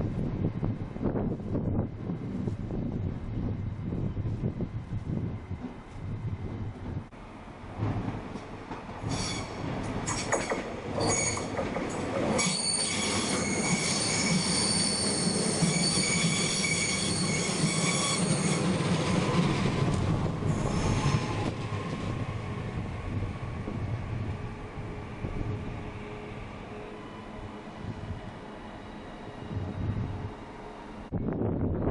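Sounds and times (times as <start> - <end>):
train wheels squealing: 9.0 - 11.7, 12.4 - 19.1, 20.5 - 21.4.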